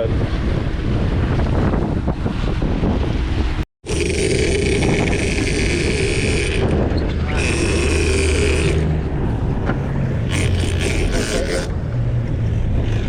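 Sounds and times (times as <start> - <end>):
wind buffeting microphone: 0.0 - 13.0
boat motor running: 3.9 - 12.6.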